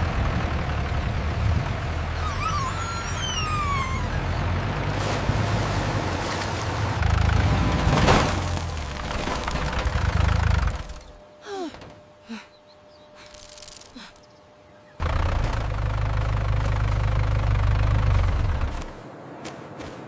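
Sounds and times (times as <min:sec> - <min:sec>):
heavy engine rumbling: 0:00.0 - 0:14.2, 0:14.8 - 0:19.0
short falling squeaks: 0:02.1 - 0:04.6, 0:13.2 - 0:14.2.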